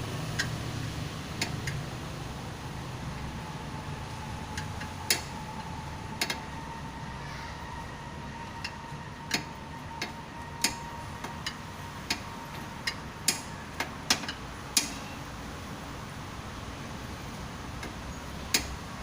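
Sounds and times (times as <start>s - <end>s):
tool clicks and metallic taps: 12.8s - 15.0s.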